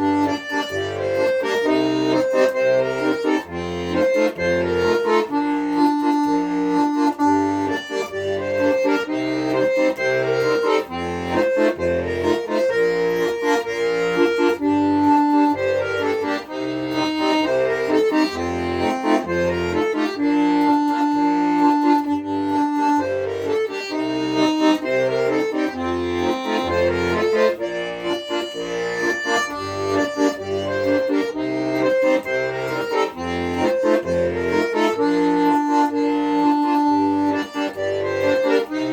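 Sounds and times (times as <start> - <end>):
accordion playing: 0.0 - 38.9.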